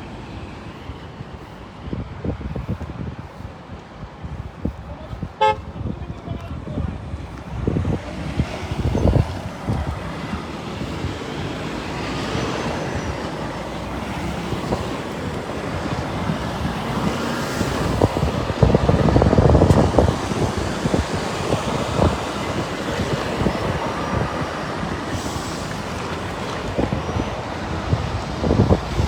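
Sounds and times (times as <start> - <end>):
wind buffeting microphone: 0.0 - 29.0
heavy lorries rumbling past: 7.6 - 29.0.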